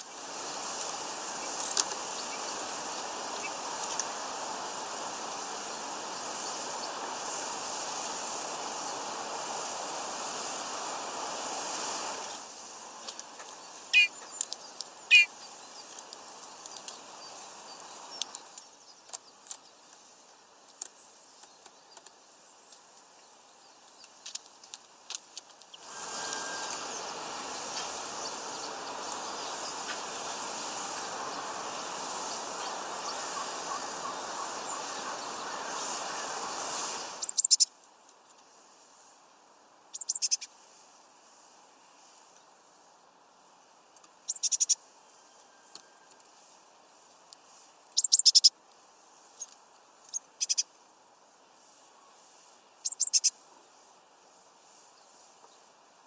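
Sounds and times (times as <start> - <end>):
small birds chirping: 0.0 - 7.4, 13.0 - 38.4, 39.9 - 40.5, 44.2 - 46.2, 46.9 - 48.5, 49.2 - 50.8, 52.0 - 53.4
steady hiss: 0.0 - 56.0.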